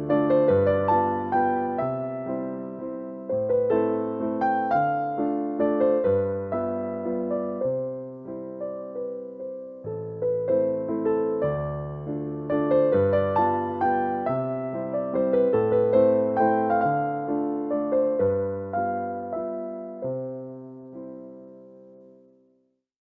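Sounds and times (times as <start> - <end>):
slow gentle piano music: 0.0 - 22.8.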